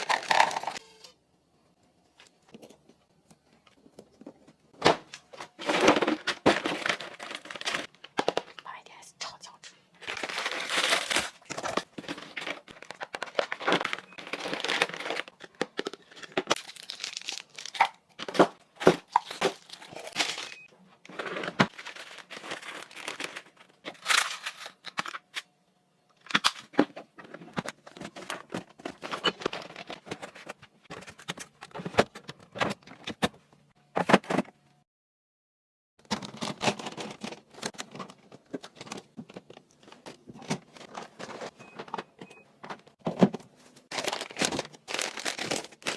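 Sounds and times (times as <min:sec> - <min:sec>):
items clicking and knocking: 0:00.0 - 0:00.8, 0:02.2 - 0:08.6, 0:09.5 - 0:16.7, 0:17.7 - 0:25.5, 0:26.1 - 0:34.6, 0:36.0 - 0:45.9
packaging crinkling and rustling: 0:00.0 - 0:00.8, 0:05.3 - 0:08.6, 0:10.0 - 0:25.5, 0:26.2 - 0:33.1, 0:36.0 - 0:41.9, 0:43.1 - 0:45.9.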